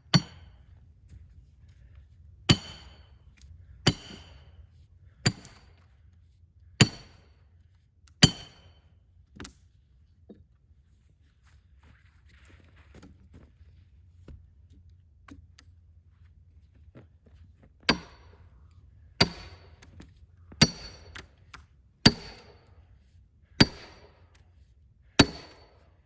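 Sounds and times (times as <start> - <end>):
hammer striking steel wedge: 0.0 - 0.5, 2.5 - 3.1, 3.9 - 4.5, 5.3 - 5.7, 6.8 - 7.2, 8.2 - 8.8, 17.9 - 18.4, 19.2 - 19.8, 20.6 - 21.3, 22.1 - 22.6, 23.6 - 24.2, 25.2 - 25.8.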